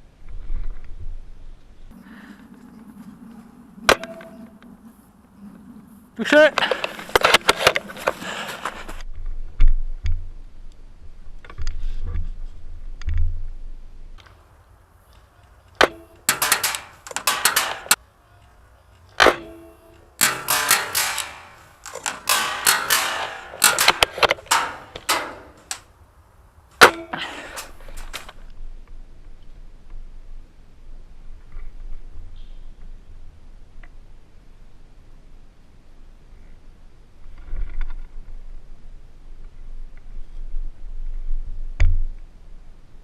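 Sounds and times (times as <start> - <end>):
rustling and clattering: 6.6 - 9.0, 15.7 - 18.0, 19.1 - 25.9, 26.8 - 28.4.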